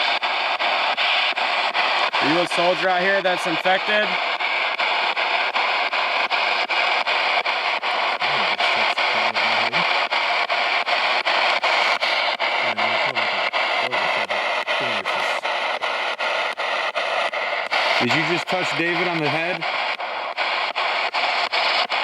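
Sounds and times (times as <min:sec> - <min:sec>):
radio static hiss chopped: 0:00.0 - 0:22.0
broken radio voice or music: 0:08.2 - 0:09.9, 0:12.7 - 0:15.4.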